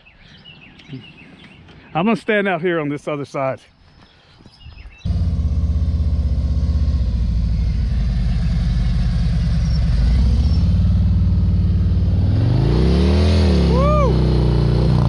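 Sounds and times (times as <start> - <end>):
motorcycle engine idling: 5.0 - 12.2.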